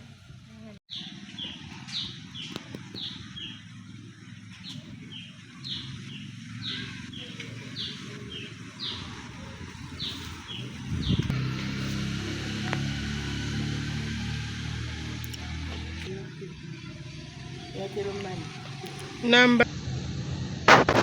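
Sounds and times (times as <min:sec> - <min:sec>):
bird chirping: 0:00.9 - 0:03.8, 0:04.5 - 0:11.3.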